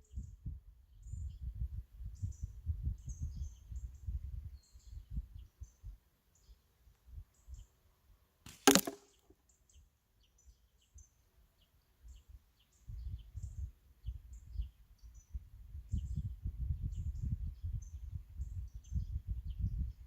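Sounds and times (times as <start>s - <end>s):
small birds chirping: 0.0s - 7.9s, 8.7s - 20.0s
slingshot crack: 8.5s - 9.1s.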